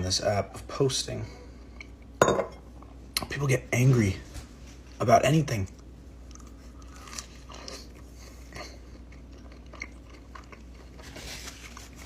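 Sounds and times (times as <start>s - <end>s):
low steady hum: 0.0s - 12.0s
chewing and biting crunches: 6.3s - 12.0s.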